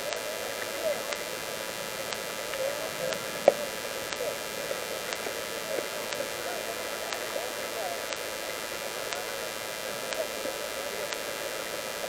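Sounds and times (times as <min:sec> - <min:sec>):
recording hiss: 0:00.0 - 0:12.0.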